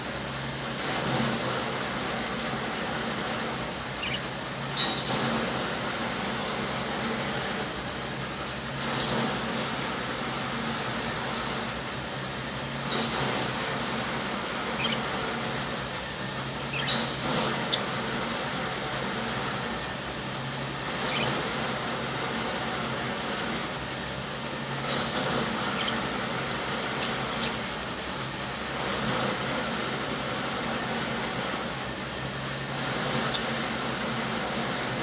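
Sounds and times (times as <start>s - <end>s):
budgerigars chirping: 2.1s - 6.4s, 13.0s - 18.6s, 20.9s - 22.0s, 25.0s - 27.8s, 32.5s - 34.5s.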